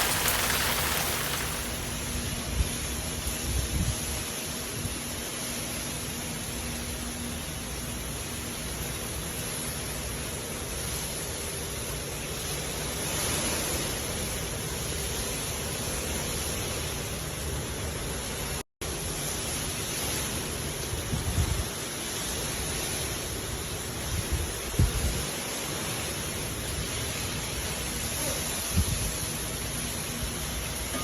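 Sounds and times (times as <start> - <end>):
hard rain hissing: 0.0 - 2.8, 18.3 - 30.9.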